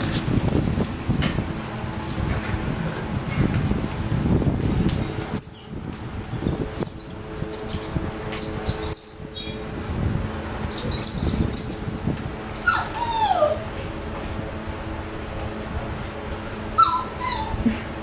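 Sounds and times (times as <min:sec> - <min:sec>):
puppies playing and scuffling: 0:00.0 - 0:14.5
puppy whining: 0:10.7 - 0:11.8, 0:12.6 - 0:13.7, 0:16.4 - 0:17.8.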